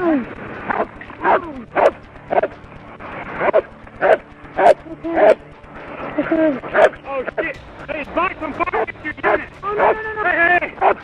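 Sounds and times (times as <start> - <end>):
dog barking: 0.8 - 2.5, 3.4 - 5.4.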